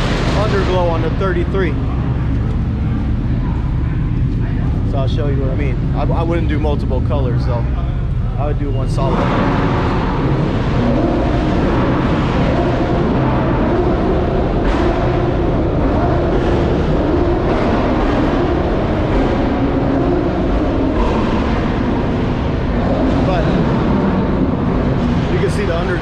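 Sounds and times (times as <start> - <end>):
car engines rumbling: 0.0 - 26.0.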